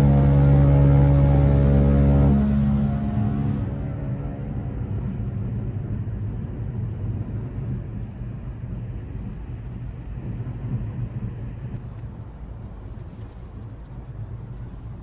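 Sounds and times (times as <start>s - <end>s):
ship engines droning: 0.0s - 9.0s.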